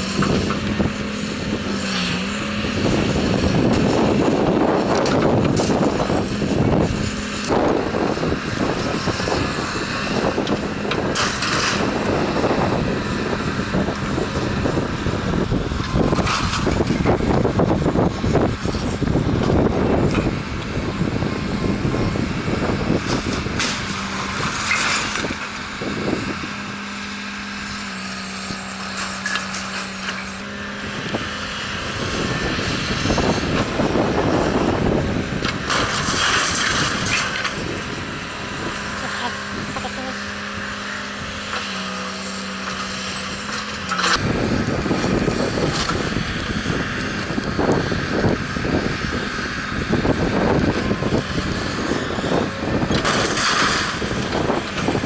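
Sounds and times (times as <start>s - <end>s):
demolition machine engine hum: 0.0s - 55.0s
debris crashing and clattering: 35.5s - 37.8s.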